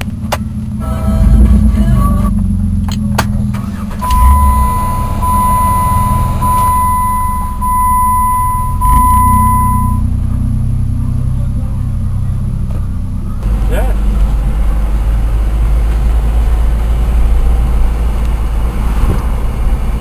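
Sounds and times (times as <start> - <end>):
car engine starting and idling: 0.0 - 20.0
dashboard warning chime beeps: 3.7 - 10.1.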